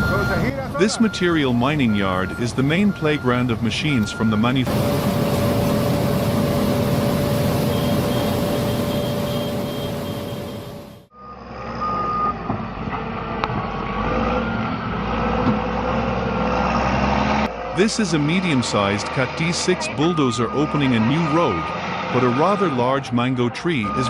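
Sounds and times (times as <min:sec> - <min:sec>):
heavy diesel machinery running: 0:00.0 - 0:11.6
back-up alarm beeping: 0:00.0 - 0:12.4, 0:19.5 - 0:21.8.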